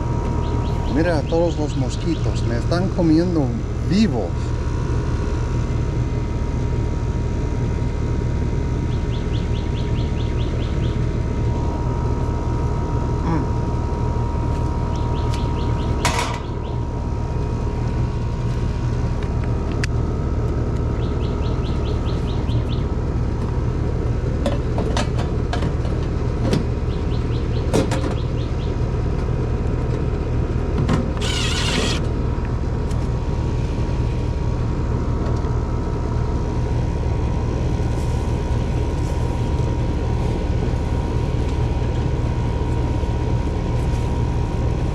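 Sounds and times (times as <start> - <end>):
air conditioner unit humming: 0.0 - 44.9.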